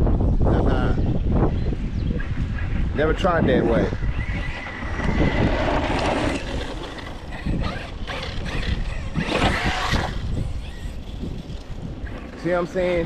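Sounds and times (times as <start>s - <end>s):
electric motor revving: 3.5s - 12.7s
tyres churning over ground: 4.0s - 13.0s.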